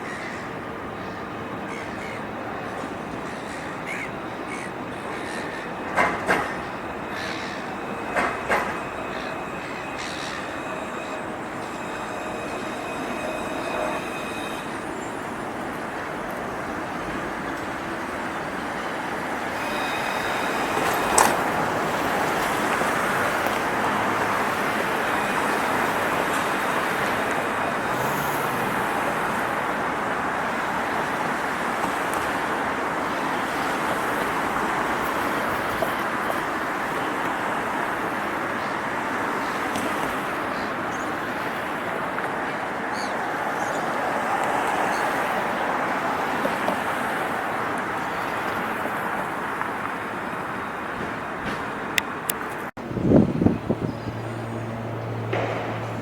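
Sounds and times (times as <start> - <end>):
train wheels rumbling: 0.0 - 56.0
sharp rail clack: 5.4 - 28.0, 55.2 - 56.0.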